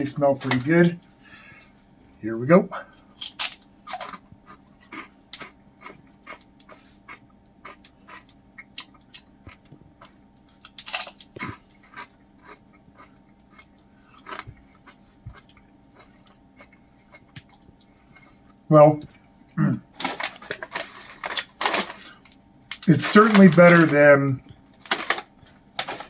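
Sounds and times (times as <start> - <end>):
person chewing crunchy food: 3.0 - 22.9.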